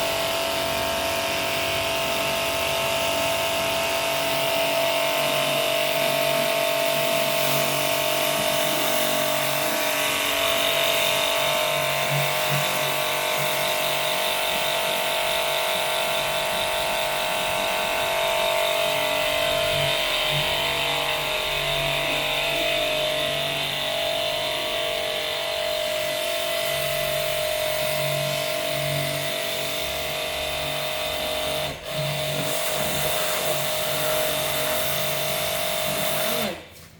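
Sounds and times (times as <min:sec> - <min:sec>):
electric motor machine whining: 0:00.0 - 0:36.8.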